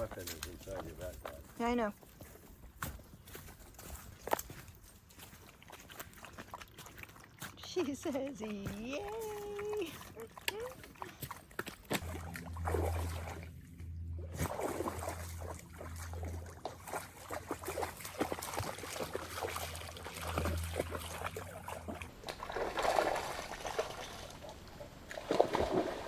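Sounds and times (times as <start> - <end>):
water splashing and sloshing: 0.0 - 26.0
low steady hum: 6.4 - 26.0.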